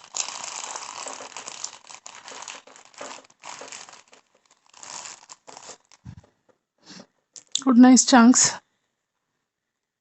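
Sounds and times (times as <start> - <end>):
packet crinkling: 0.0 - 6.2.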